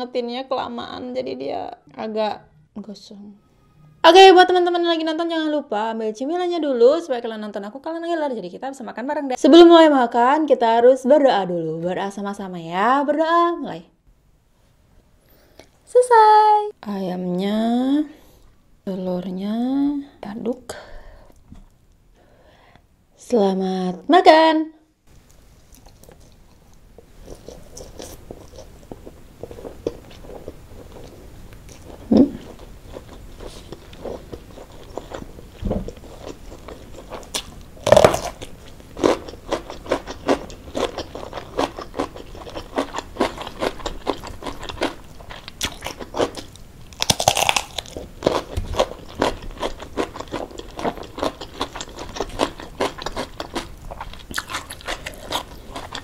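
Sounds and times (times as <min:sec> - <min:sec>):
person chewing and crunching: 0:25.6 - 0:56.0.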